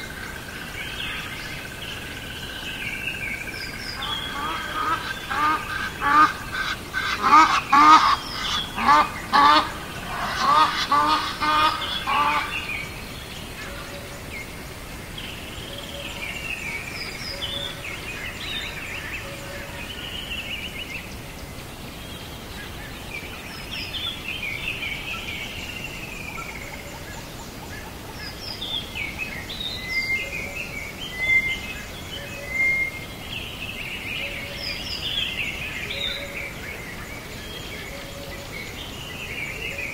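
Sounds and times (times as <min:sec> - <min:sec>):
small birds chirping and singing: 0:00.0 - 0:39.9
waterfowl calling loudly: 0:04.0 - 0:12.9.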